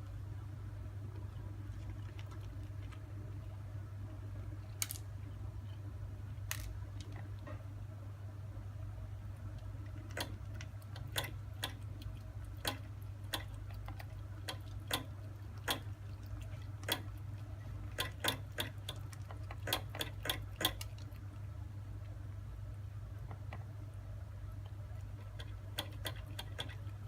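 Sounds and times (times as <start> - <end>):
steady low hum: 0.0 - 27.0
kitten feeding clicks: 9.4 - 22.2, 24.6 - 27.0.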